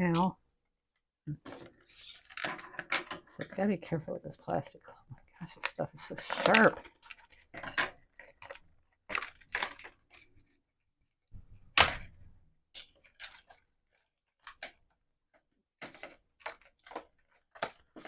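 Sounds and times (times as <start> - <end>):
plastic packaging crackling: 5.5 - 10.5, 12.8 - 14.8, 15.8 - 18.0.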